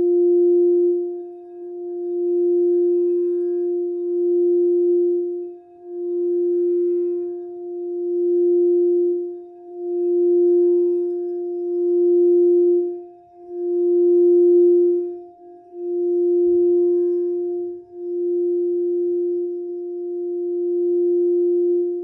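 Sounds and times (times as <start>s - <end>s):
crystal singing bowl tone: 0.0s - 22.0s.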